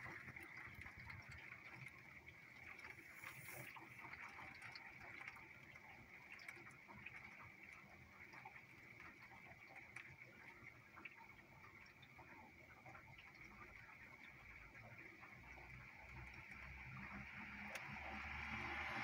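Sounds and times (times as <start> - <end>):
raindrop ticks: 12.8 - 18.6.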